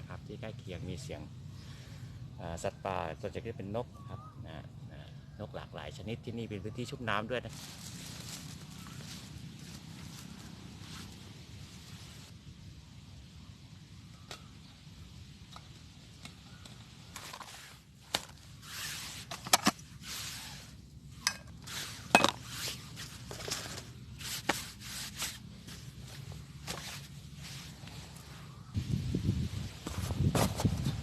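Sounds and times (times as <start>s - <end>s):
rustling and shuffling: 7.5s - 12.3s, 21.6s - 28.8s, 29.4s - 31.0s.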